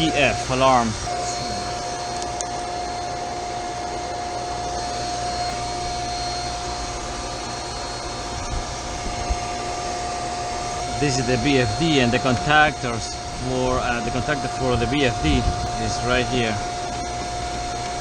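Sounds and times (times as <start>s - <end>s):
high-pitched tone: 0.0s - 3.7s
chiller equipment whirring drone: 0.0s - 18.0s.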